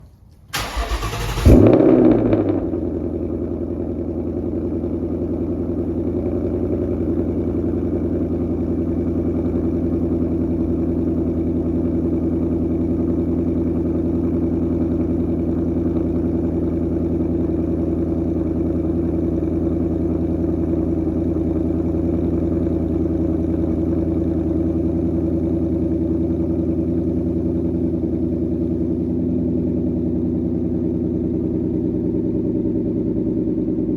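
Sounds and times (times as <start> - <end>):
car engine starting and idling: 0.0 - 33.9
starter motor cranking: 0.5 - 1.7.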